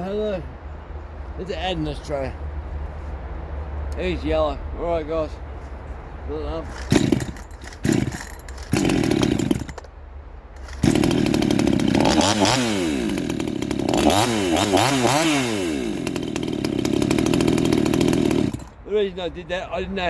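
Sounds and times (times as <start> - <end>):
chainsaw revving high: 6.7 - 9.8, 10.6 - 18.8.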